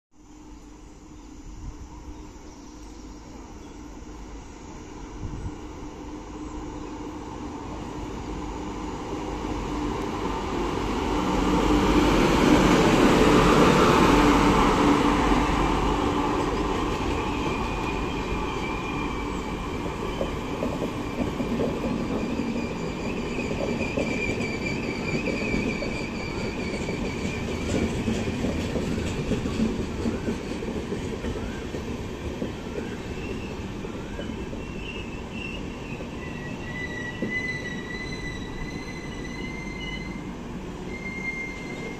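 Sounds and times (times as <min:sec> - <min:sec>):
train wheels rumbling on rails: 0:03.3 - 0:41.9
locomotive rushing past: 0:04.9 - 0:41.9
high wheel squeals: 0:22.0 - 0:27.8, 0:32.8 - 0:41.9.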